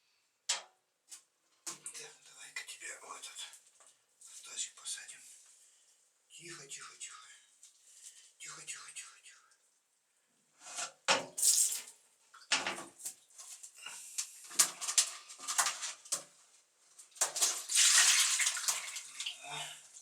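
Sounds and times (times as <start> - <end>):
water pouring: 11.4 - 11.9, 14.5 - 16.2, 17.1 - 20.0
water splashing in a basin: 11.4 - 11.9, 14.5 - 16.3, 17.1 - 20.0.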